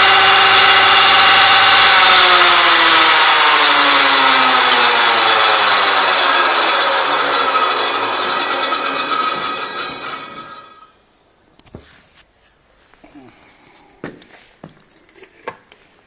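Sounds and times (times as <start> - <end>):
woodworking machine winding down: 0.0 - 10.9.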